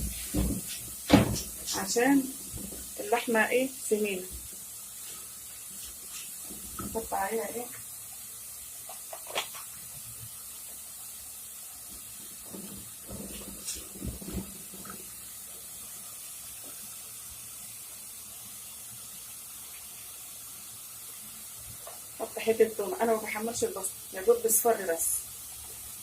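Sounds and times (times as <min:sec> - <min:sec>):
utensil knocks and thuds: 0:00.0 - 0:02.9, 0:12.4 - 0:15.0
ghee sizzling in a pot: 0:00.0 - 0:26.0.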